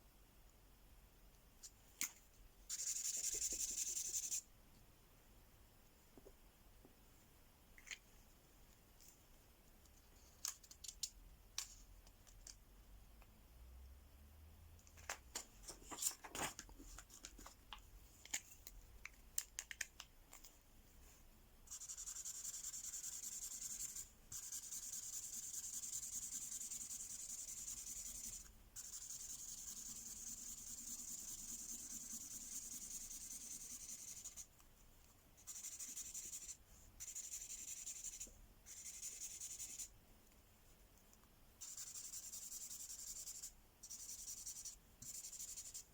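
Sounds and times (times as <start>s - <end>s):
marker scratching on paper: 2.7s - 4.5s, 21.7s - 34.5s, 35.4s - 39.9s, 41.6s - 45.9s.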